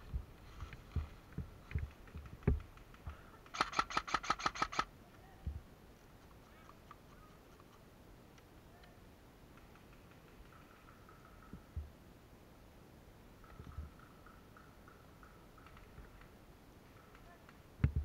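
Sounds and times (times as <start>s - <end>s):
airsoft gun firing burst: 3.5s - 4.9s.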